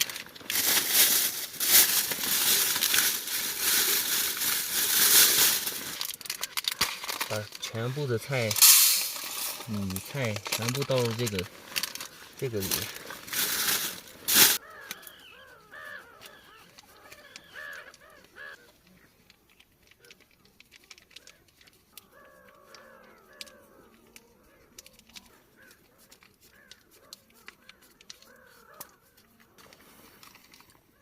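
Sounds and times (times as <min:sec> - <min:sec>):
loud sharp crinkle: 0:00.0 - 0:15.1, 0:16.2 - 0:30.9
gulls calling: 0:13.6 - 0:19.3.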